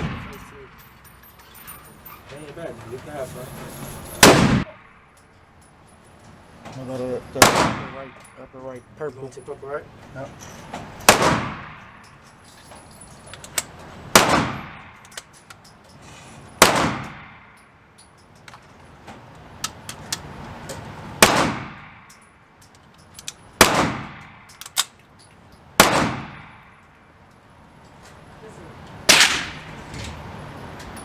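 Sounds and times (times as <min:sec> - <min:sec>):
gunshots: 0:00.0 - 0:00.7, 0:04.2 - 0:04.7, 0:07.4 - 0:08.1, 0:11.1 - 0:11.9, 0:14.1 - 0:15.0, 0:16.6 - 0:17.4, 0:21.2 - 0:22.0, 0:23.6 - 0:24.9, 0:25.8 - 0:26.6, 0:29.1 - 0:29.9
faint sharp cracks and clinks: 0:00.0 - 0:20.9, 0:21.8 - 0:28.2.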